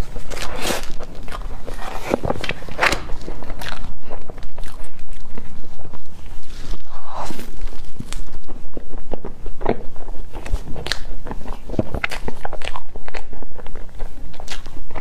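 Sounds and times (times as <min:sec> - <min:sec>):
biting soft cake: 0:00.0 - 0:15.0
lip smacks: 0:00.0 - 0:15.0
wet sticky chewing: 0:00.0 - 0:15.0.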